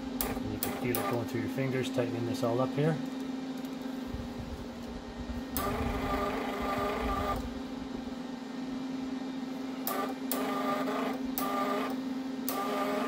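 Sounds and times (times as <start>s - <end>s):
wire-feed motor whirring: 0.0s - 1.8s, 4.8s - 7.6s, 9.7s - 13.0s
welder humming: 0.0s - 13.0s.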